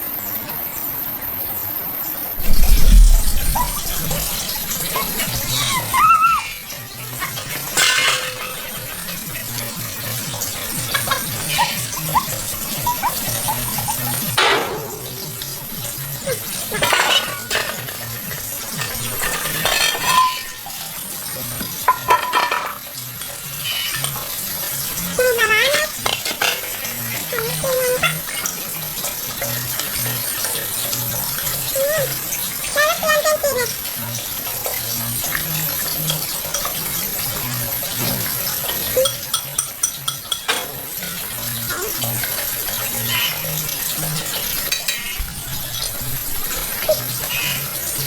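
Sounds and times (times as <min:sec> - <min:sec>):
food sizzling: 0:00.1 - 0:48.0
utensils clinking against dishes: 0:02.4 - 0:33.4, 0:34.0 - 0:48.0
tableware clinking: 0:07.2 - 0:09.3, 0:16.7 - 0:18.2, 0:18.8 - 0:20.8, 0:21.9 - 0:22.8, 0:38.8 - 0:41.2, 0:44.6 - 0:45.2.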